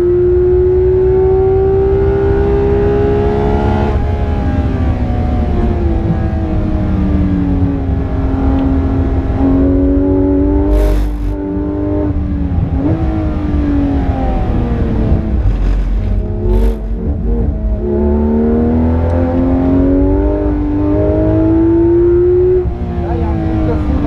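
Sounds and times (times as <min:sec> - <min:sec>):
car engine revving: 0:00.0 - 0:24.0
rush of noise: 0:10.6 - 0:11.7, 0:13.7 - 0:18.0.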